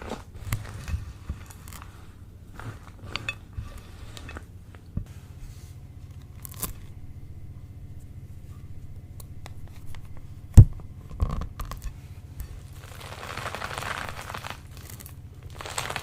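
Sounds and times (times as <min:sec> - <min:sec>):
crisp material crunching: 0:00.0 - 0:04.9, 0:12.4 - 0:16.0
steady low hum: 0:00.0 - 0:16.0.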